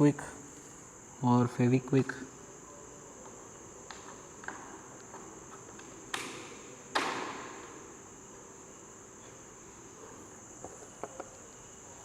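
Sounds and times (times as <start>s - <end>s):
steady high-pitched hiss: 0.0s - 12.0s
sharp knocks: 6.1s - 7.6s.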